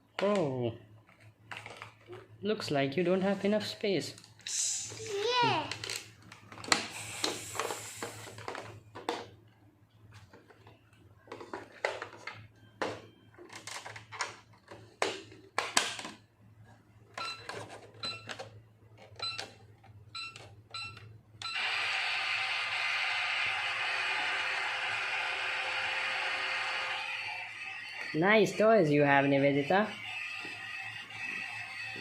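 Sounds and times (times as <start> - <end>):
plastic toys clattering: 1.1 - 2.3, 13.4 - 16.2
toy microwave running: 17.2 - 32.0.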